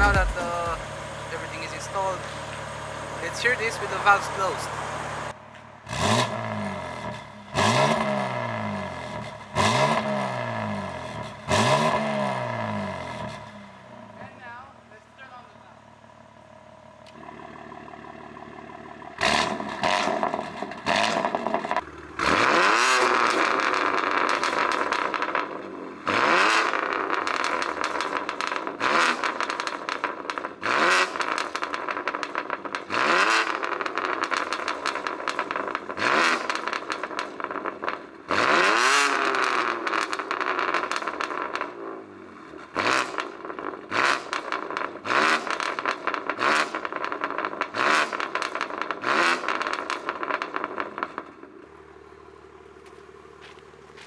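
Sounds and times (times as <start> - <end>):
exhaust pops and crackles: 0.0 - 5.7, 17.0 - 54.0
car engine revving: 0.0 - 14.2, 16.0 - 54.0.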